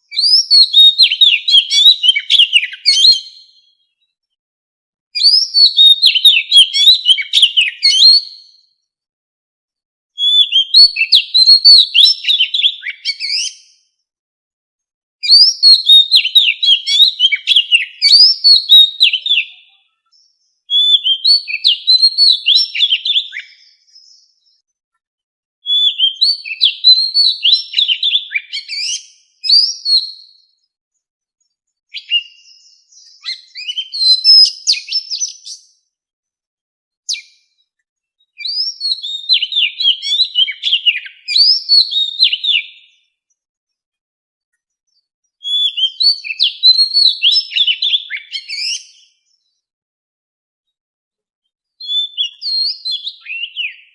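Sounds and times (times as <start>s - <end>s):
bird singing whistled phrases: 0.1s - 3.9s, 5.2s - 8.7s, 10.2s - 13.9s, 15.2s - 24.6s, 25.6s - 30.6s, 31.9s - 35.8s, 37.1s - 37.5s, 38.3s - 43.1s, 45.4s - 49.3s, 51.8s - 53.9s.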